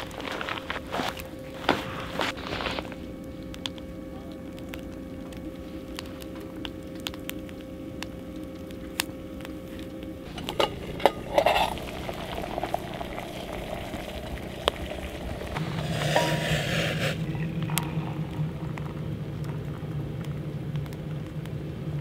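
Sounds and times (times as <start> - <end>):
food sizzling with pops: 0.0 - 22.0
steady hum: 0.0 - 22.0
cookware clattering: 10.3 - 12.1.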